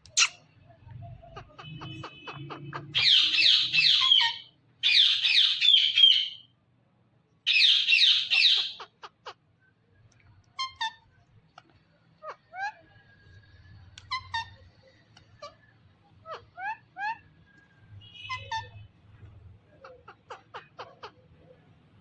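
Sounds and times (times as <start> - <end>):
parrot squawking: 0.1 - 0.4, 1.2 - 6.5, 7.5 - 9.4, 14.1 - 14.8.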